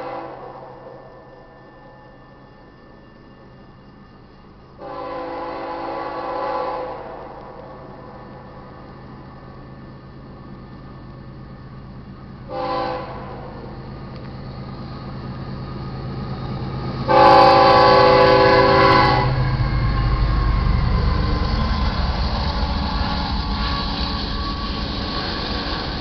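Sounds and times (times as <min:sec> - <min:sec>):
locomotive air horn blasts: 0:00.0 - 0:00.7, 0:04.8 - 0:07.3, 0:12.5 - 0:13.6, 0:17.1 - 0:19.5
train rumbling over rails: 0:00.0 - 0:26.0.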